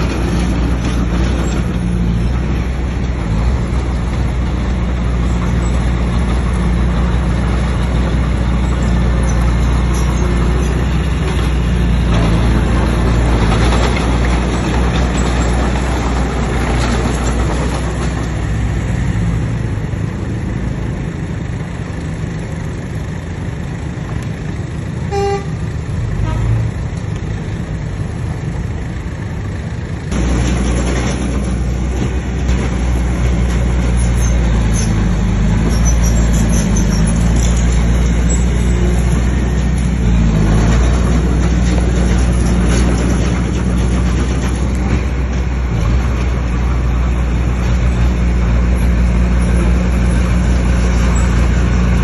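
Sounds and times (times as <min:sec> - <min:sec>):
diesel earthmoving machinery running: 0:00.0 - 0:52.0
short horn toot: 0:25.1 - 0:25.6.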